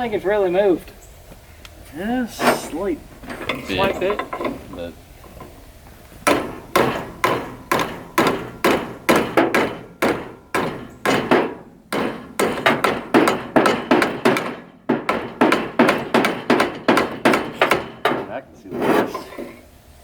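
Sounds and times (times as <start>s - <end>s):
hammer beating on metal: 6.2s - 19.3s.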